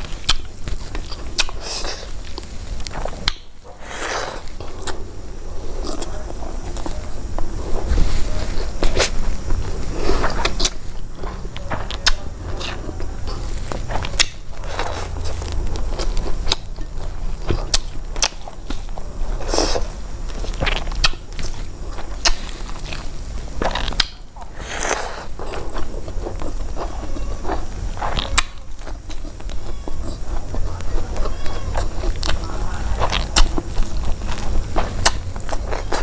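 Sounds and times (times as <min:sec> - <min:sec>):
chewing and crunching food: 0:00.0 - 0:36.0.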